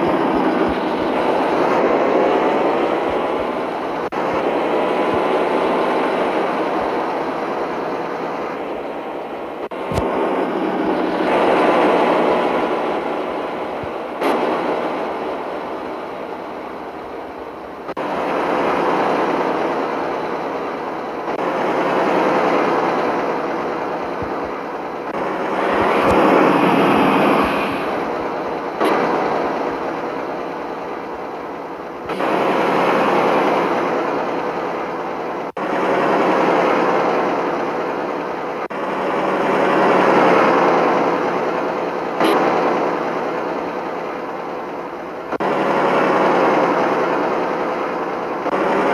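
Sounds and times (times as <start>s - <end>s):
truck engine running: 0.0s - 48.9s
road noise: 24.1s - 33.6s.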